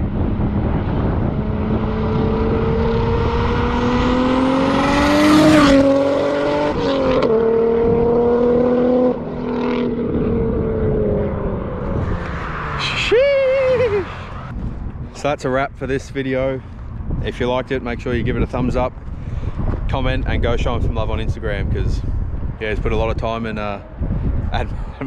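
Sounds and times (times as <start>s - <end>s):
car engine revving: 0.0s - 14.5s.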